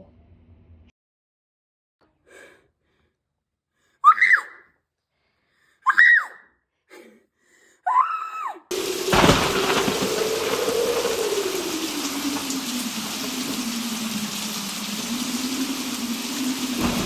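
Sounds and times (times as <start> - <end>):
shrill vocal cries: 4.0 - 4.7, 5.8 - 6.5, 7.8 - 8.7
loud steady hiss: 8.7 - 17.0.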